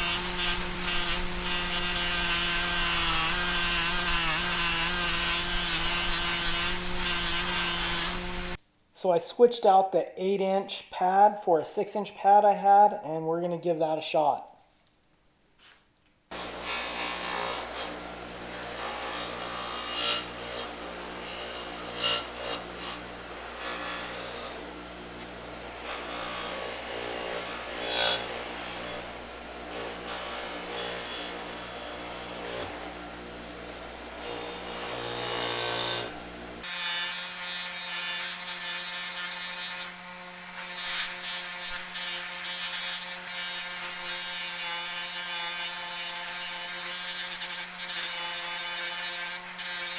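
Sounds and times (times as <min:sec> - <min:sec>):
bench buffer motor hum: 0:00.0 - 0:08.6
buffer wheel rasping on metal: 0:00.0 - 0:08.6.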